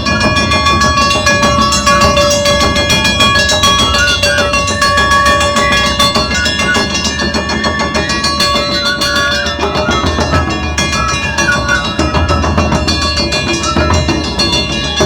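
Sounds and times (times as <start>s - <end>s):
fast taiko drumming: 0.0s - 15.0s
high held melody line: 0.0s - 15.0s.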